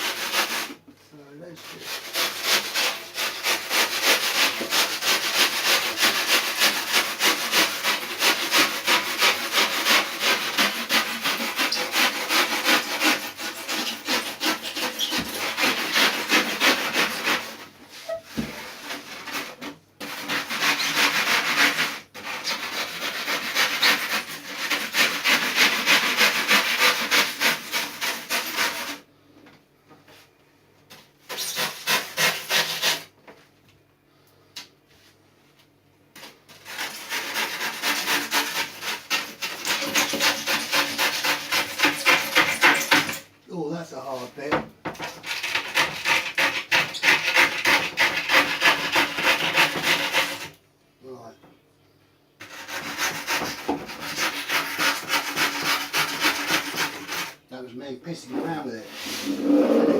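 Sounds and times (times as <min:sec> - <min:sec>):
sanding foam by hand: 0:00.0 - 0:00.8, 0:01.6 - 0:29.1, 0:31.3 - 0:33.1, 0:36.6 - 0:43.2, 0:45.2 - 0:50.5, 0:52.4 - 0:57.4.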